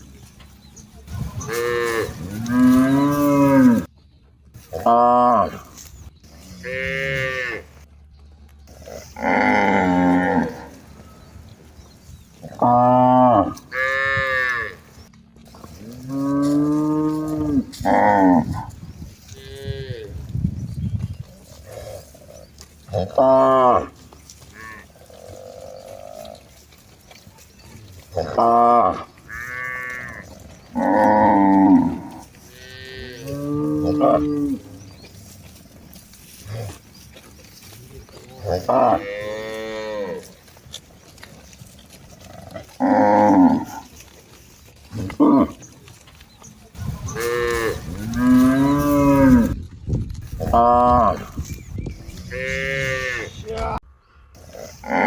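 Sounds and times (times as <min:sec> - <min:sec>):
cattle mooing: 0:01.3 - 0:03.9, 0:06.4 - 0:07.7, 0:08.7 - 0:11.2, 0:12.4 - 0:14.9, 0:15.6 - 0:20.2, 0:21.6 - 0:26.6, 0:27.7 - 0:35.1, 0:37.4 - 0:41.2, 0:41.8 - 0:44.1, 0:44.9 - 0:45.6, 0:46.8 - 0:49.6, 0:52.2 - 0:53.6, 0:54.4 - 0:55.0.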